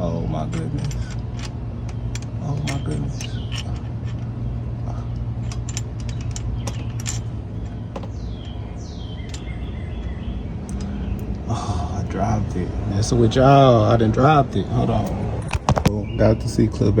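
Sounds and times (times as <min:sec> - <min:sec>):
steady low hum: 0:00.0 - 0:17.0
small metal clicks and clinks: 0:00.4 - 0:04.3, 0:05.1 - 0:09.7, 0:10.6 - 0:11.4.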